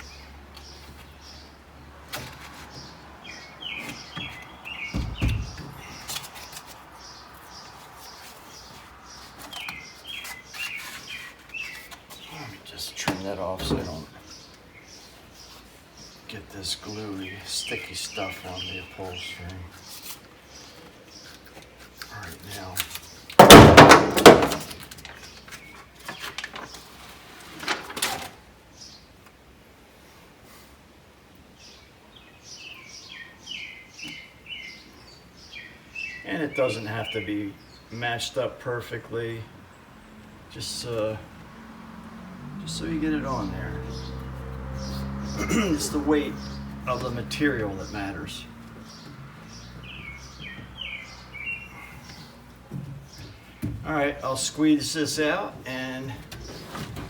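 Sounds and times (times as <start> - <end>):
small birds chirping: 0.0 - 23.4, 28.6 - 29.5, 31.1 - 57.0
low thump: 4.9 - 5.9.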